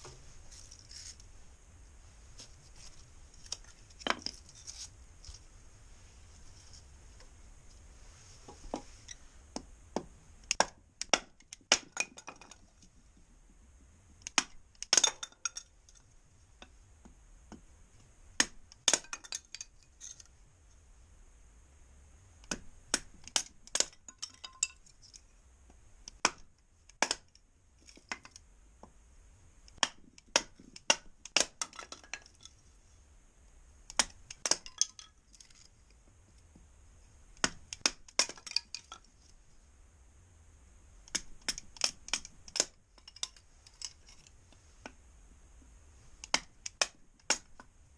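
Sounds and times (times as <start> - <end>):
kindling wood snapping: 10.4 - 12.4, 14.2 - 15.3, 18.4 - 19.2, 26.1 - 27.3, 29.7 - 32.5, 33.9 - 35.7, 37.4 - 39.0, 41.1 - 44.2, 46.2 - 47.6.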